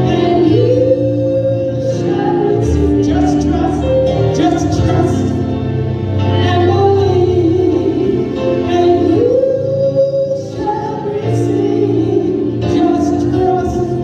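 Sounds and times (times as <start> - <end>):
gospel singing with accompaniment: 0.0 - 14.0.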